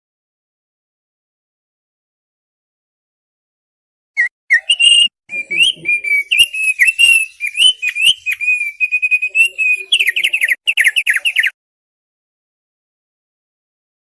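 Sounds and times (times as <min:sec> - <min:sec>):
bird whistling song: 0:04.2 - 0:11.6.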